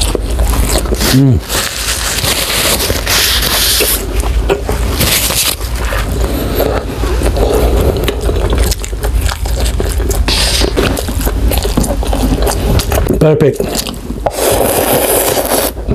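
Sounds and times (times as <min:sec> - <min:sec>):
chewing with wet clicks: 0:05.5 - 0:14.2.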